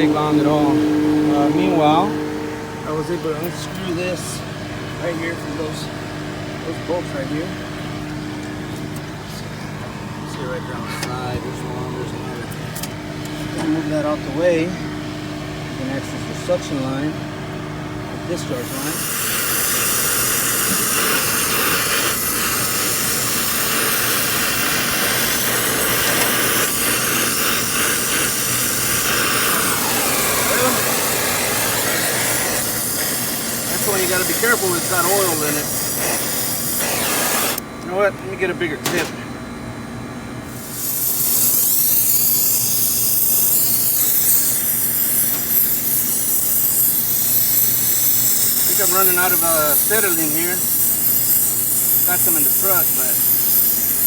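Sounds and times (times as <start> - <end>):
brazing torch hissing: 18.4 - 37.7, 40.5 - 54.0.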